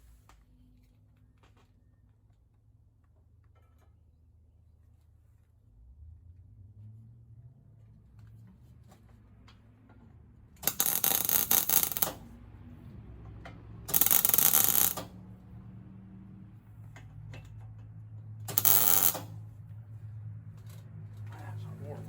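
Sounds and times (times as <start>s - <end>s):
welding arc crackling: 10.6s - 12.2s, 13.9s - 15.1s, 18.5s - 19.3s.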